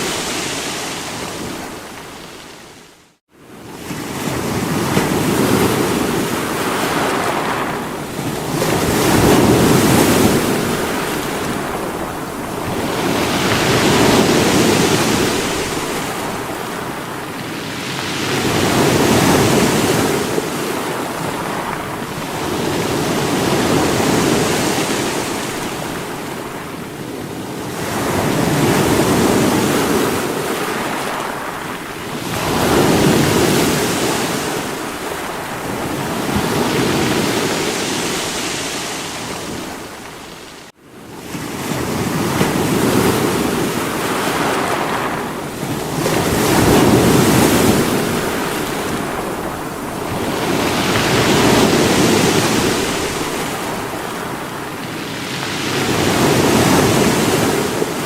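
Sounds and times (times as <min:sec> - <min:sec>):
waves breaking against rocks: 0:03.7 - 0:40.7, 0:41.3 - 0:58.0.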